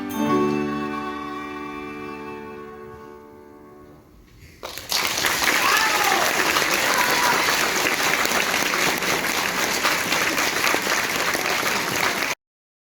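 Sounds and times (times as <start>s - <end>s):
audience applauding: 4.6s - 12.4s.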